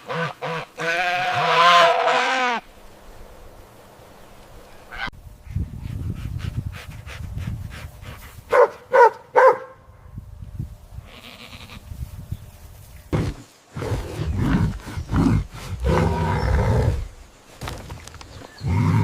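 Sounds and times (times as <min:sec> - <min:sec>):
goat bleating: 0:00.2 - 0:02.6, 0:11.0 - 0:11.8.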